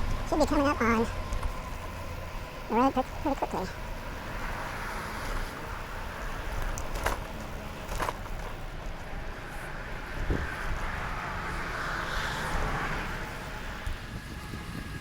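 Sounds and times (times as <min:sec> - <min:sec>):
bicycle tyres on trail: 0:01.1 - 0:02.7, 0:03.7 - 0:15.0
wind on microphone: 0:10.0 - 0:11.0, 0:13.4 - 0:15.0.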